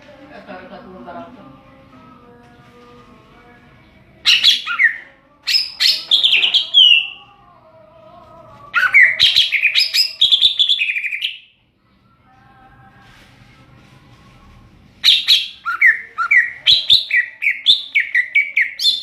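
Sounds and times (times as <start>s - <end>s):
bird warbling song: 4.2s - 7.2s, 8.8s - 11.5s, 15.0s - 19.0s.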